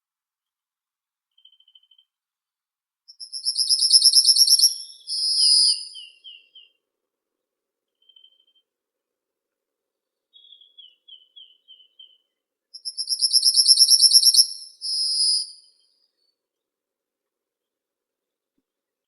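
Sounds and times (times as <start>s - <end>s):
songbird chirping and trilling: 1.3s - 2.1s, 3.1s - 6.8s, 7.9s - 8.7s, 10.0s - 16.4s.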